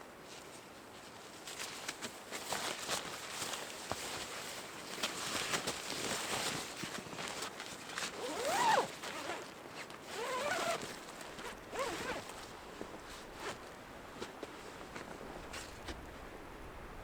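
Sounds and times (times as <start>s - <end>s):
zipper being pulled: 8.0s - 12.5s.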